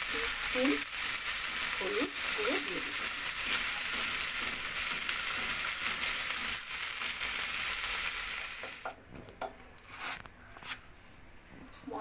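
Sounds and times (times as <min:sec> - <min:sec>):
masala sizzling in hot oil: 0:00.0 - 0:09.0.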